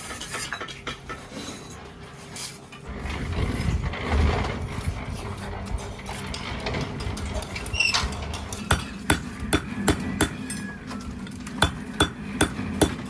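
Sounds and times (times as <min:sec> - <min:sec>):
hammer knocks: 0:08.7 - 0:10.4, 0:11.6 - 0:13.0.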